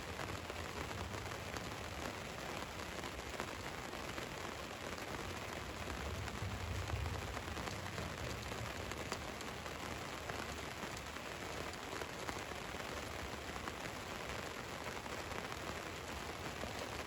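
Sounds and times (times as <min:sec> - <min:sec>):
rain falling on a van: 0:00.0 - 0:17.0.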